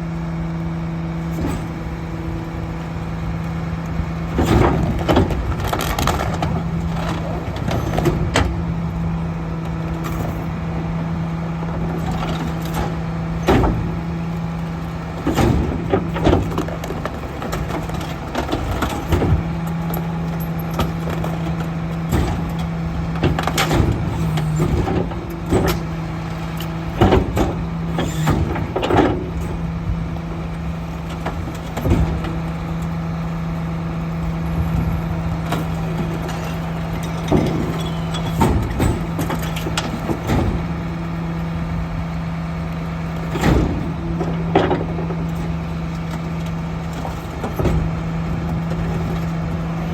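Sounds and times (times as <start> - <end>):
garbage truck engine hum: 0.0 - 49.9
loud bangs and clanks of carts: 4.2 - 9.3, 11.8 - 29.9, 34.4 - 41.6, 42.9 - 49.9.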